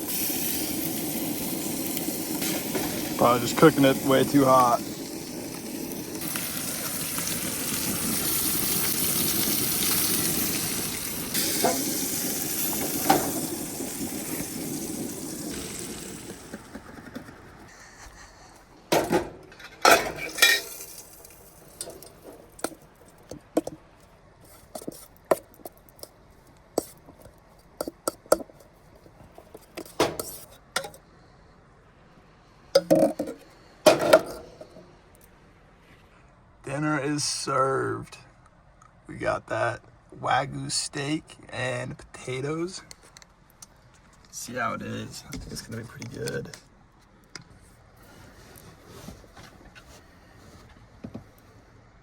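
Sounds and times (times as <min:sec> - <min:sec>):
steak sizzling in a pan: 0:00.0 - 0:16.7, 0:20.2 - 0:23.1
cutlery and dishes clinking: 0:19.5 - 0:21.2.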